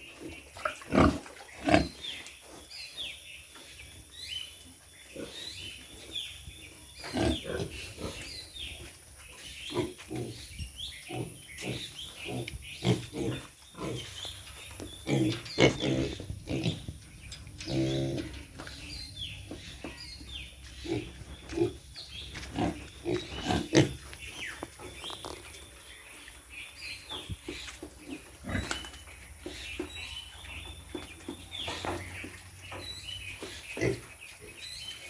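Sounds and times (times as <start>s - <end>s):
pigs grunting: 0.0s - 2.1s, 7.0s - 8.7s, 9.5s - 25.3s, 27.4s - 29.8s, 33.3s - 34.6s.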